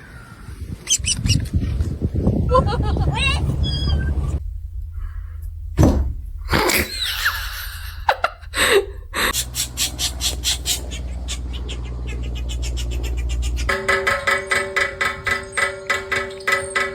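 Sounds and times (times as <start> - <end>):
steady low hum: 1.9 - 15.3
short falling squeal: 3.5 - 8.2.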